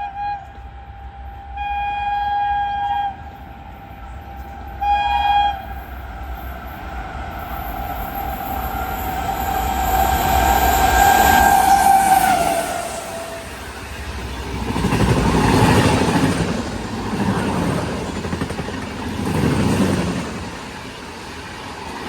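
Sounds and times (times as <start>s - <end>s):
train horn blasts: 0.0s - 5.9s
train rail and wheel noise: 0.0s - 22.0s.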